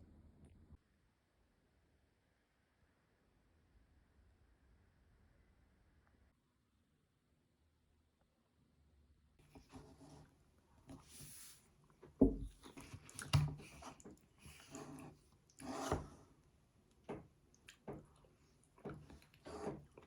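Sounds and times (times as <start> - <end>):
rustling scrapes: 9.5 - 16.3, 19.0 - 20.0.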